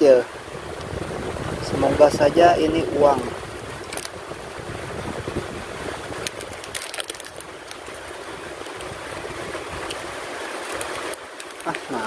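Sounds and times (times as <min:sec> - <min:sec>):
heavy rain falling: 0:00.0 - 0:12.0
paper crackling: 0:06.2 - 0:09.0, 0:09.8 - 0:12.0.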